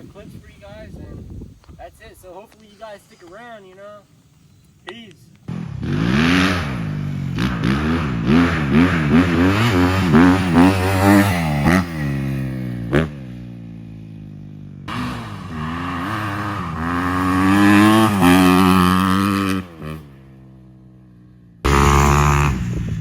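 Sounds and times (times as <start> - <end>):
dirt bike engine revving: 5.5 - 21.0, 21.6 - 23.0.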